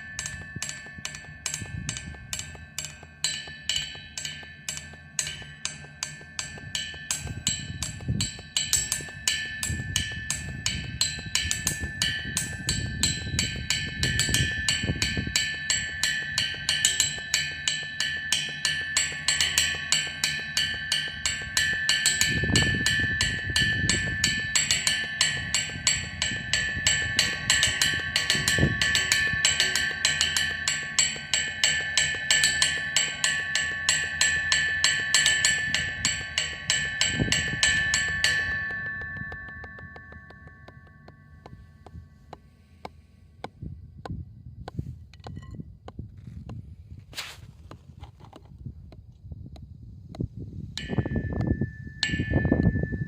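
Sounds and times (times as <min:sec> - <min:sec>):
drums played in steady rhythm: 0:00.0 - 0:41.0.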